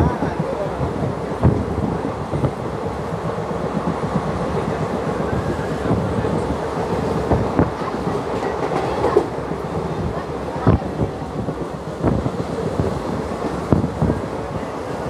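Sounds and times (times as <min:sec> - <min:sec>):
train wheels rumbling on rails: 0:00.0 - 0:15.0
clacks over rail joints: 0:02.3 - 0:14.2.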